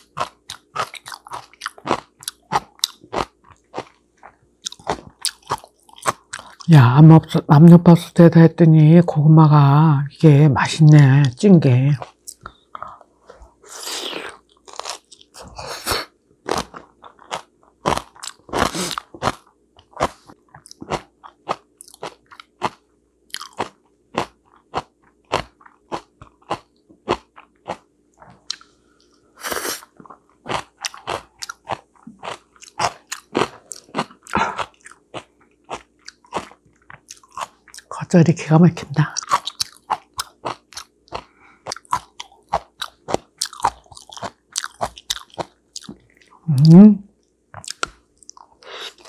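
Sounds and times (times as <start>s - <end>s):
food crunching: 0.0s - 6.7s, 11.9s - 38.0s, 39.0s - 49.0s.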